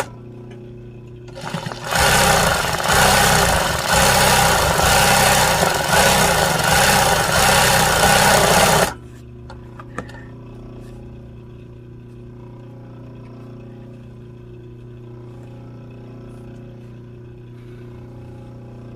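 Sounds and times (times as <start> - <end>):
sewing machine stitching: 1.3 - 9.0.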